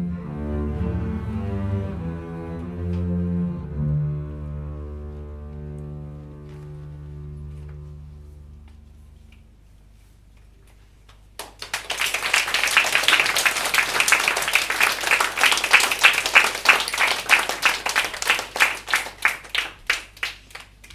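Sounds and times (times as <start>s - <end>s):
audience applauding: 11.4s - 20.9s.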